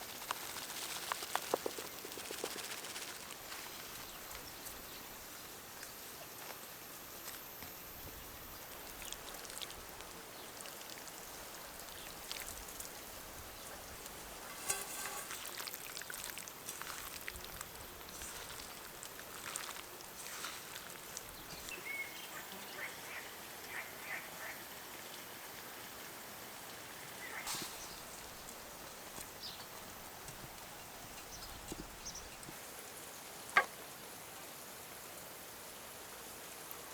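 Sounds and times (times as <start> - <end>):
food sizzling in hot oil: 13.9 - 21.7.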